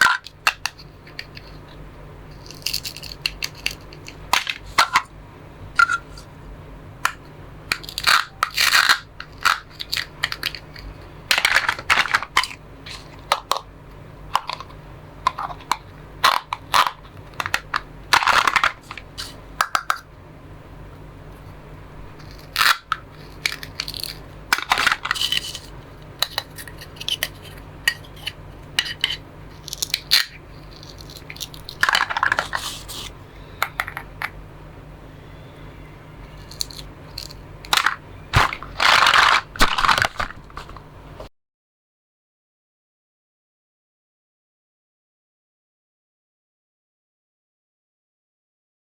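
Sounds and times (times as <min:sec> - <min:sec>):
plastic toy food being cut: 0:02.4 - 0:05.1, 0:07.7 - 0:13.6, 0:22.2 - 0:34.0, 0:36.3 - 0:40.3.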